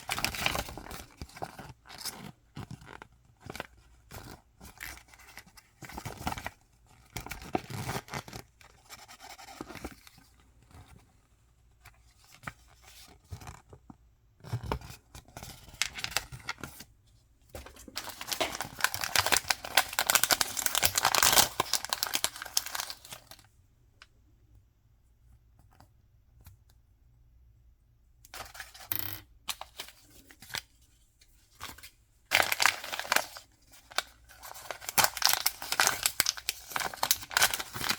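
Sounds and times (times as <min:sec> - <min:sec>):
packaging tearing and crinkling: 0:17.8 - 0:23.4, 0:32.3 - 0:37.9.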